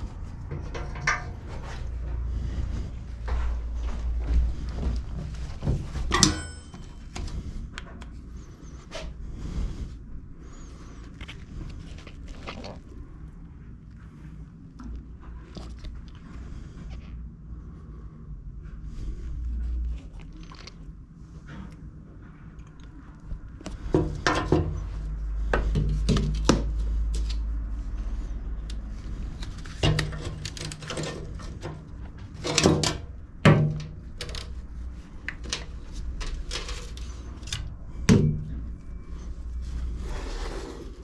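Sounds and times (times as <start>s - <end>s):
knocks and clatters of mower parts: 0.0s - 2.2s, 5.6s - 7.3s, 23.8s - 25.0s, 29.6s - 34.6s
low rumble: 0.0s - 32.4s, 33.1s - 41.0s.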